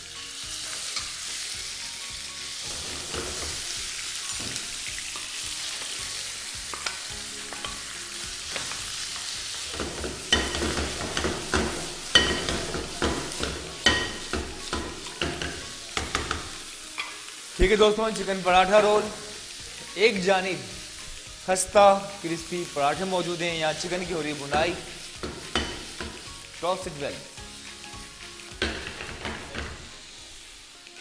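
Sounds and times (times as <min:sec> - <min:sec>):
chicken sizzling in hot oil: 0:00.0 - 0:31.0
spatula scraping a pan: 0:02.5 - 0:06.0.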